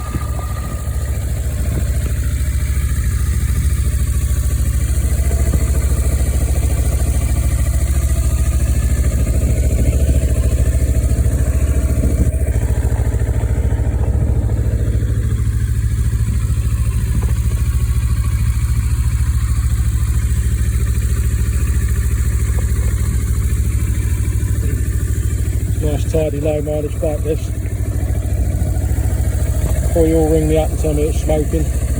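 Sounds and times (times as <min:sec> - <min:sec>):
motorcycle engine idling: 0:00.0 - 0:31.9.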